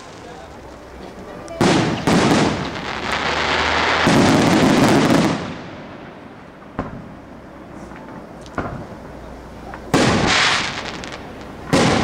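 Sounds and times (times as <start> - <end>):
fireworks popping and crackling: 0.0 - 12.0
firework bang: 1.6 - 7.3, 8.0 - 9.0, 9.9 - 12.0.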